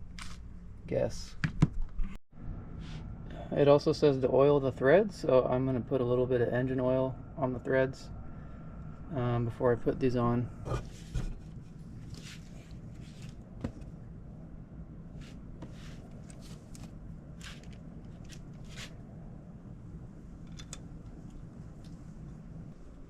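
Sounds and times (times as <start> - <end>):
steady low hum: 0.0 - 23.0
faint rustles and small clicks: 15.2 - 19.0.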